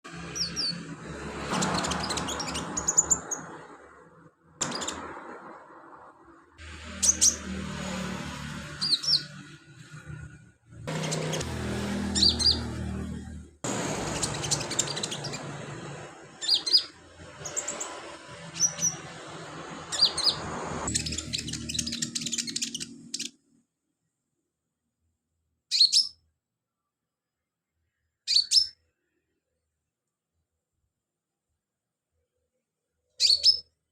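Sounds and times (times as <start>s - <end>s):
bird high thin chirps and trills: 8.8s - 9.5s, 12.2s - 12.7s, 13.9s - 19.1s, 19.9s - 23.4s, 25.7s - 26.2s, 28.3s - 28.8s, 33.2s - 33.7s.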